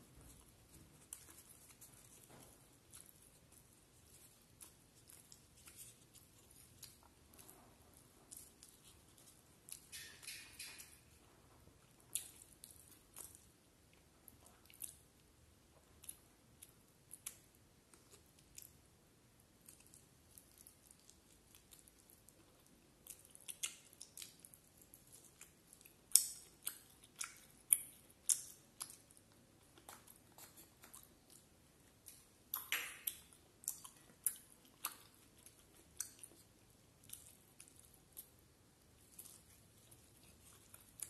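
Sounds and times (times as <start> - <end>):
person chewing food: 0.0 - 41.0
wet mouth clicks: 32.5 - 35.0.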